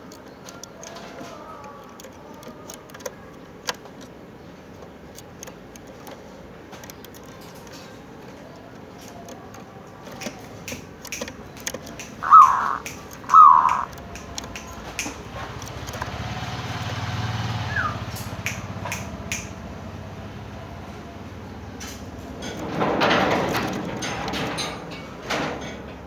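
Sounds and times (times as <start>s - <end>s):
dove calling: 0.0s - 19.6s
light clicks: 0.0s - 19.6s
low engine rumble: 7.4s - 25.2s.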